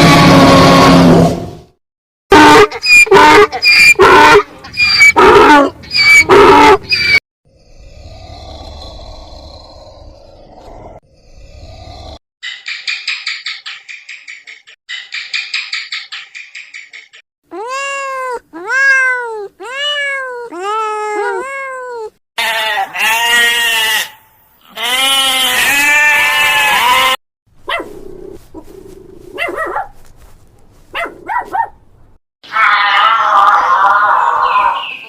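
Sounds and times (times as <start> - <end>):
harsh animal calls: 2.3 - 12.2, 32.4 - 35.0
bleat-like animal calls: 22.4 - 27.2.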